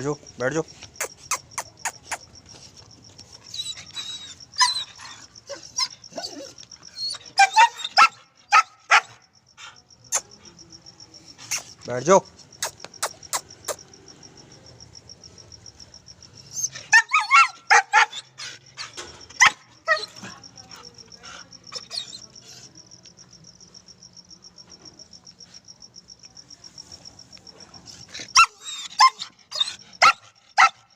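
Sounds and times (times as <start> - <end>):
puppy barking and yipping: 3.4 - 9.2, 16.6 - 20.3, 28.3 - 30.9.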